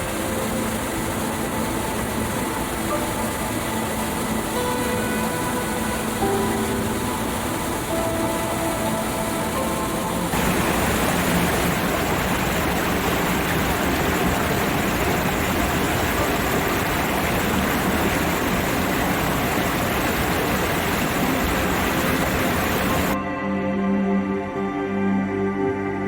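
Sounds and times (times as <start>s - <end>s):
waterfall rushing: 0.0s - 23.2s.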